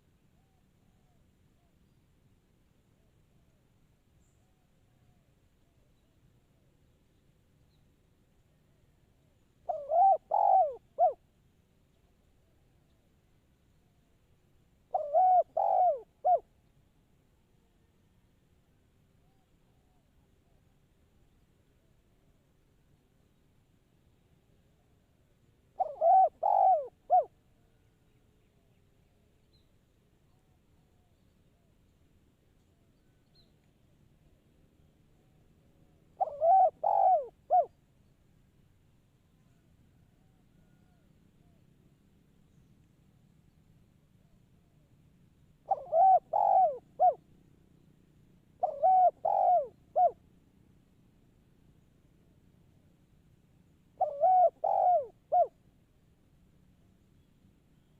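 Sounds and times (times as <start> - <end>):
dove cooing: 9.6 - 11.2, 14.9 - 16.5, 25.8 - 27.3, 36.2 - 37.8, 45.7 - 47.2, 48.6 - 50.2, 54.0 - 55.6.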